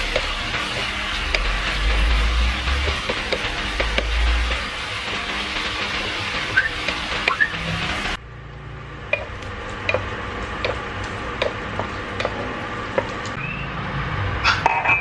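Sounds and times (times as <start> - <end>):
utensil clicking against pot: 9.1 - 13.4.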